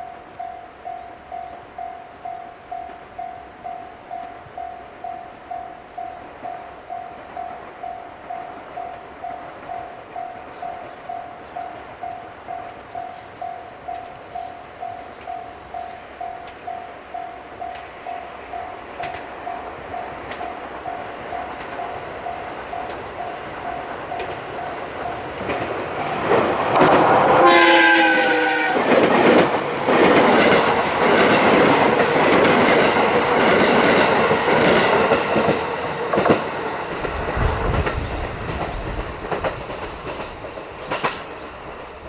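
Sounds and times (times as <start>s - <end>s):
level-crossing bell ringing: 0.0s - 36.0s
train wheels clattering over rail joints: 20.2s - 42.0s
train horn: 26.1s - 32.7s.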